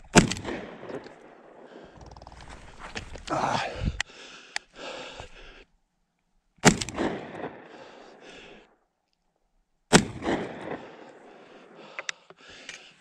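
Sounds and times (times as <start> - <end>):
shotgun shots: 0.1 - 1.6, 6.6 - 7.8, 9.9 - 11.1.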